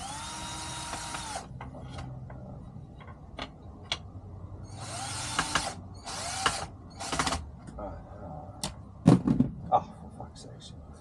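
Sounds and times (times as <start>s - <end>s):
power drill driving screw into wood: 0.0s - 1.5s, 4.7s - 7.4s.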